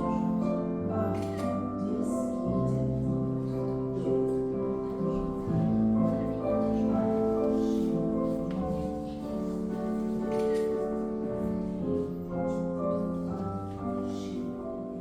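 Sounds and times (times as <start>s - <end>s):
classical piano music: 0.0s - 15.0s.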